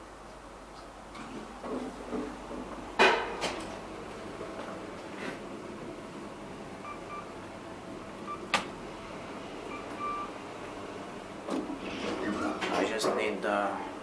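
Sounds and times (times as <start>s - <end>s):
low machinery hum: 0.0s - 14.0s
elevator button beeps: 6.8s - 7.3s, 8.3s - 8.6s, 9.7s - 10.4s.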